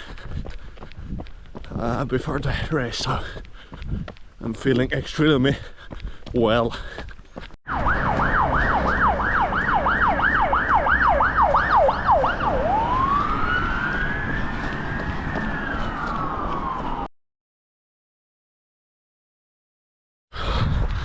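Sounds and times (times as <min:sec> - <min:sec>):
emergency siren yelp and wail: 0:07.6 - 0:17.1.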